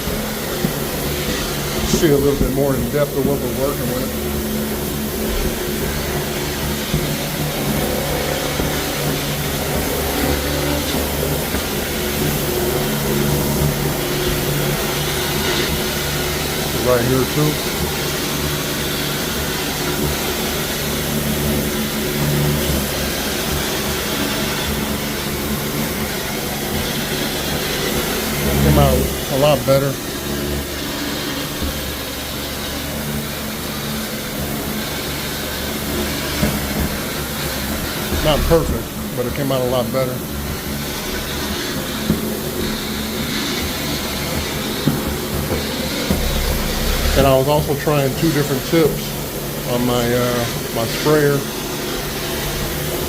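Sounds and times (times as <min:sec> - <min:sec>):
cleaning machine motor hum: 0:00.0 - 0:53.0
hiss of spray and suction: 0:46.1 - 0:47.6.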